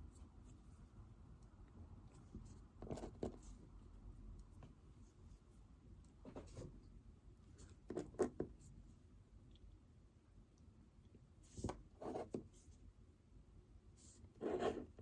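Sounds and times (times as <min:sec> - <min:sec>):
pen scratching on paper: 0:02.5 - 0:03.6, 0:11.6 - 0:12.4, 0:14.3 - 0:15.0.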